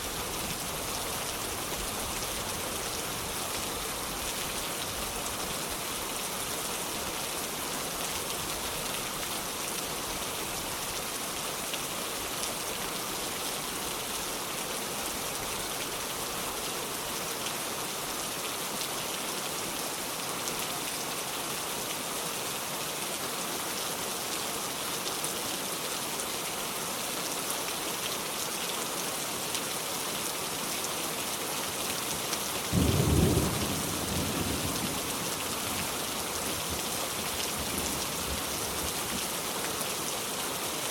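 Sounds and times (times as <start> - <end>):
heavy rain hissing: 32.6 - 40.9.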